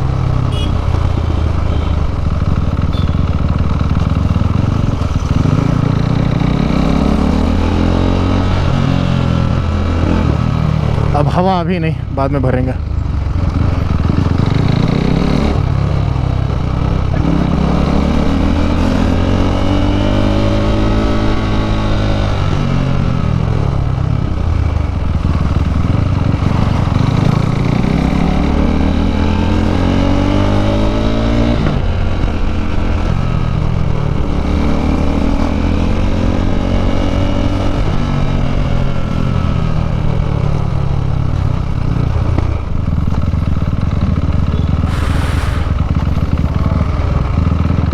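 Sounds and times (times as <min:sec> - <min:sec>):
motorcycle engine accelerating: 0:00.0 - 0:47.9
wind rumble: 0:44.7 - 0:47.6.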